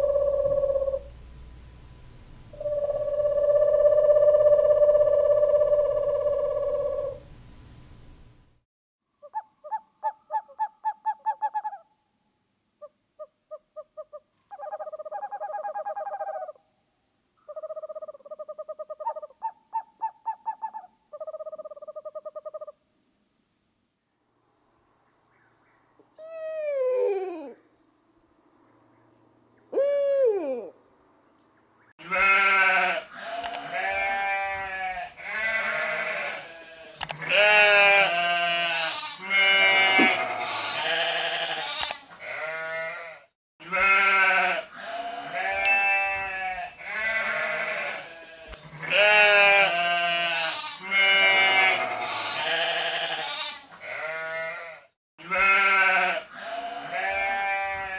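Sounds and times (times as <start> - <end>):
pulsing owl calls: 0.0 - 1.2, 2.5 - 7.3, 12.8 - 16.6, 17.5 - 22.8
falling calls: 2.6 - 7.2
sheep bleating: 32.0 - 57.9
faint thin high tone: 45.6 - 46.4.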